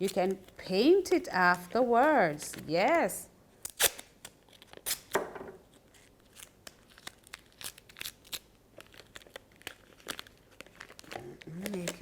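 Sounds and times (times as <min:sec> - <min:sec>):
paper and tape crinkling: 0:00.0 - 0:03.0, 0:03.8 - 0:12.0
short tearing sounds: 0:03.6 - 0:05.2.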